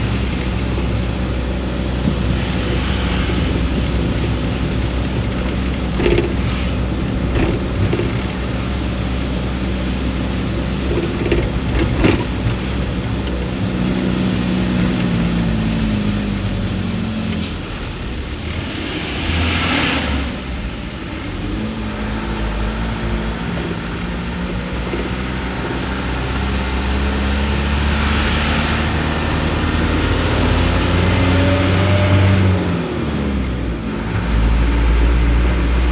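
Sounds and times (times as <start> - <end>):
truck engine revving: 10.6 - 35.9.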